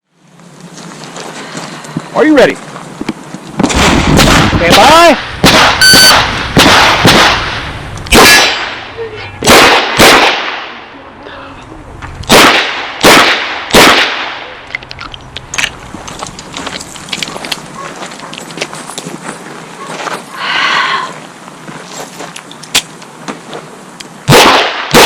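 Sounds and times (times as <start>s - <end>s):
faint clicks and movement: 14.6s - 20.3s.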